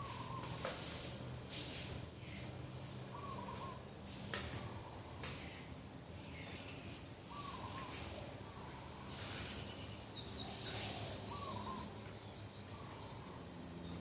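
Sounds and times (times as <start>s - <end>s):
dove cooing: 0.0s - 0.6s, 3.1s - 3.8s, 7.3s - 8.7s, 10.6s - 11.9s
steady outdoor hiss: 0.0s - 14.0s.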